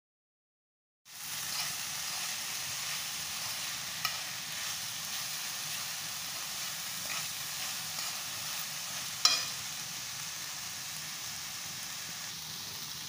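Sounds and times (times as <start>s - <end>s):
food sizzling in a pan: 1.1s - 13.0s
utensil clinking against pan: 9.2s - 9.6s.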